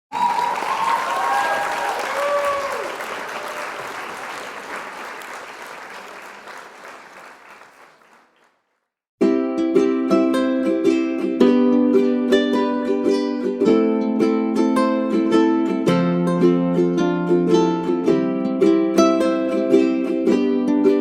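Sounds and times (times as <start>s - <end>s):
crowd applause and cheering: 0.1s - 8.7s.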